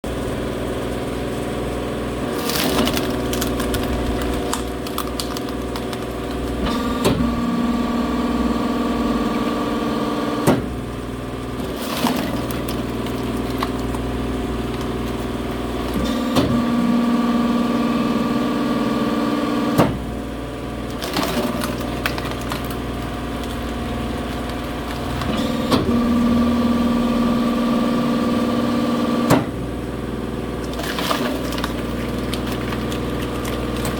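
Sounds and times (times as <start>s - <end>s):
log splitter engine hum: 0.1s - 33.9s
wood splitting crack: 2.3s - 7.2s, 11.6s - 16.6s, 20.9s - 25.9s, 30.6s - 33.9s.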